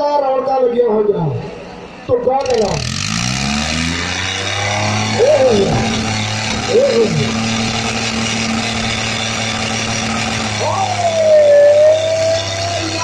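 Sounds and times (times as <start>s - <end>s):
tractor engines straining: 0.0s - 13.0s
person shouting: 5.1s - 6.0s, 6.6s - 7.4s, 10.6s - 13.0s.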